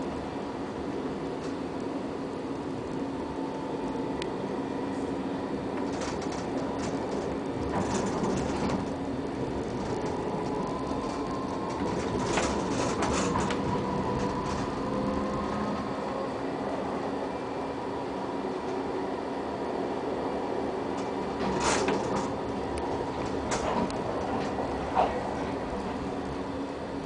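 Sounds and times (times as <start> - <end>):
faint whine: 0.0 - 27.0
tram rumbling on rails: 0.0 - 27.0
clattering rattles: 5.9 - 9.0, 9.6 - 14.7.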